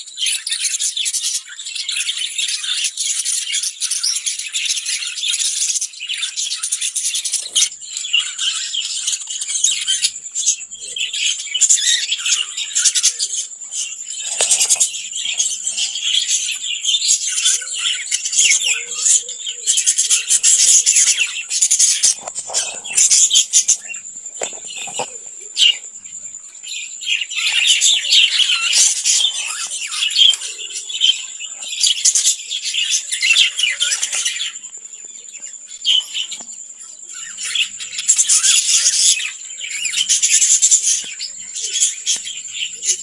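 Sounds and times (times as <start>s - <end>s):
lovebirds chirping and squeaking: 0.0s - 34.6s, 35.8s - 43.0s.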